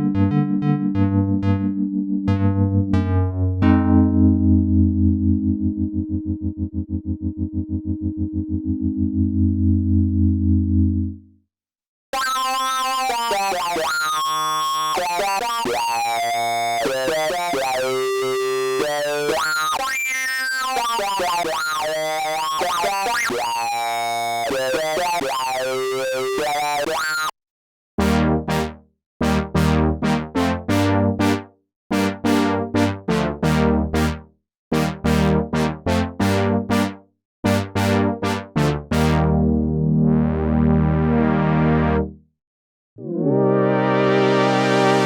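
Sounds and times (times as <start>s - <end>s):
synth lead melody: 0.0s - 11.2s, 38.2s - 42.1s, 43.0s - 45.0s
synth brass chords: 28.0s - 34.2s, 34.8s - 36.9s, 37.5s - 42.1s, 43.0s - 45.0s.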